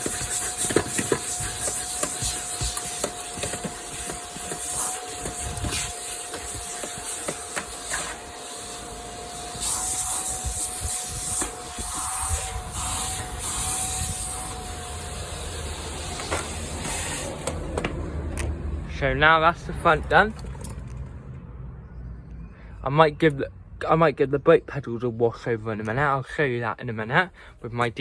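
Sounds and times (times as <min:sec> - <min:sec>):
vacuum nozzle scraping floor: 0:00.0 - 0:18.1
vacuum cleaner whining: 0:00.0 - 0:18.4.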